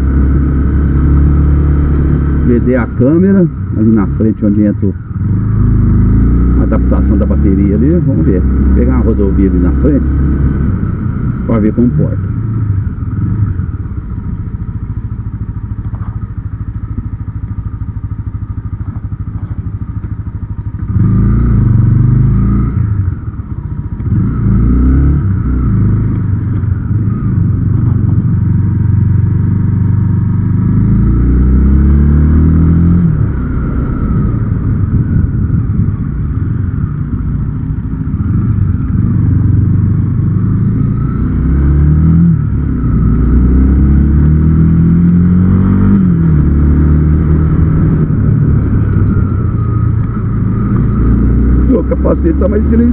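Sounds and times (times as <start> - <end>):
motorcycle engine accelerating: 0.0 - 52.9
wind rumble on microphone: 24.0 - 30.4, 32.2 - 41.0, 41.6 - 51.7.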